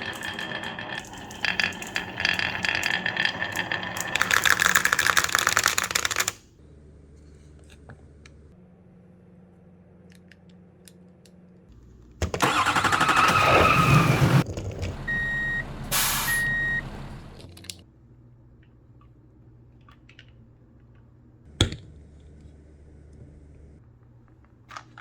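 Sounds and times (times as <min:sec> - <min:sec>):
toy engine-start rumble: 0:00.0 - 0:06.3, 0:12.3 - 0:17.3
short beeps: 0:15.1 - 0:17.2.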